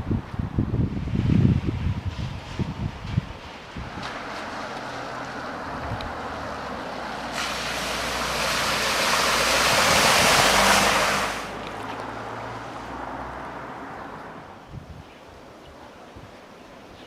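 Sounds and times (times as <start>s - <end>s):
vehicle splashing through floodwater: 1.1s - 14.6s
low engine hum: 3.2s - 14.6s.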